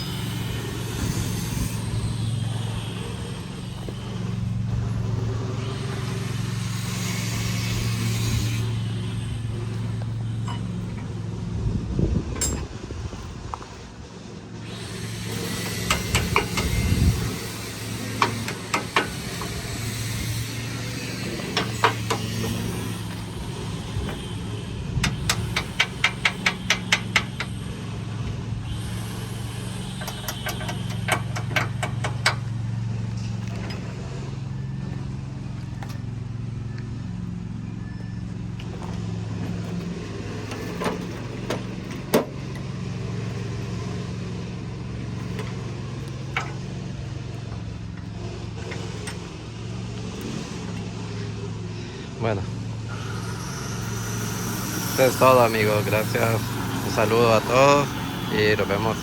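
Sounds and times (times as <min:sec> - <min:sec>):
tractor diesel engine idling: 0:00.0 - 0:12.8, 0:13.4 - 0:59.0.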